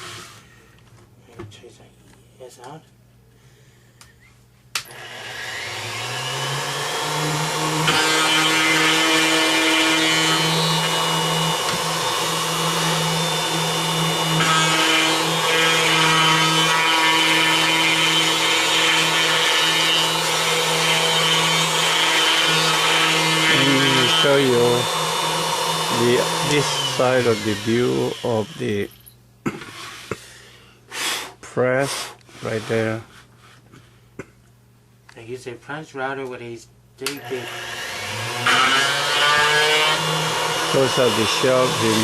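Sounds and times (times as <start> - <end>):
router motor whine: 4.8 - 29.0, 37.1 - 42.0
router bit rasping into wood: 4.9 - 28.9, 37.2 - 42.0.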